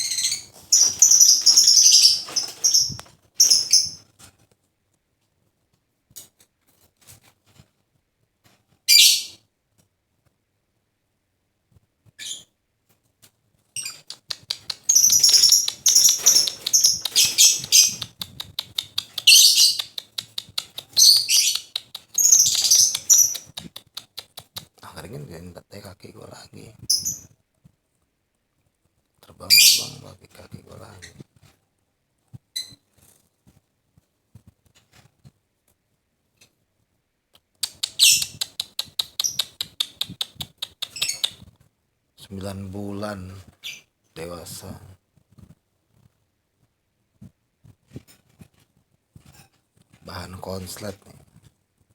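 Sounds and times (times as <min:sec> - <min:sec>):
lovebird shrill chirps: 0:00.0 - 0:04.0, 0:08.9 - 0:09.3, 0:13.8 - 0:23.7, 0:37.6 - 0:41.4
fast clicks: 0:14.1 - 0:24.7, 0:37.6 - 0:41.4.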